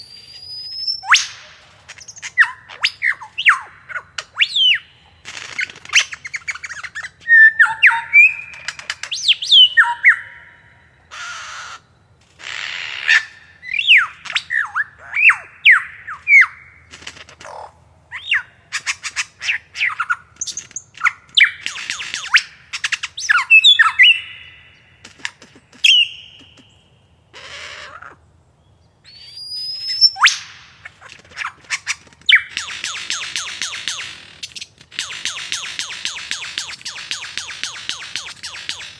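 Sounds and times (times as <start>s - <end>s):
bird whistling and singing: 0.0s - 5.1s, 5.9s - 10.8s, 13.0s - 16.8s, 18.1s - 24.8s, 25.8s - 26.9s, 29.1s - 30.9s, 32.3s - 34.1s, 35.0s - 38.9s
harsh raspy bird notes: 0.7s - 28.2s, 29.1s - 38.9s.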